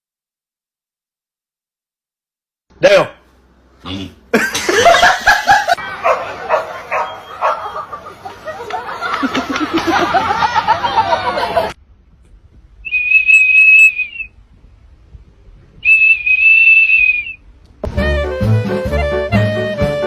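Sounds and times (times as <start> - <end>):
long high whistles: 12.8 - 14.4, 15.8 - 17.4.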